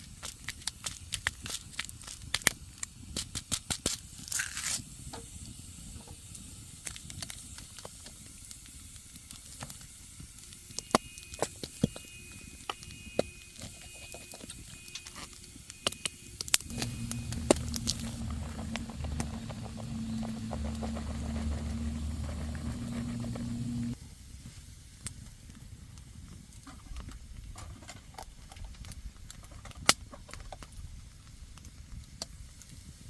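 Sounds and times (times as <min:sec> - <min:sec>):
wood fire crackling and popping: 0:00.0 - 0:04.2, 0:16.5 - 0:24.0
low steady hum: 0:16.7 - 0:24.0.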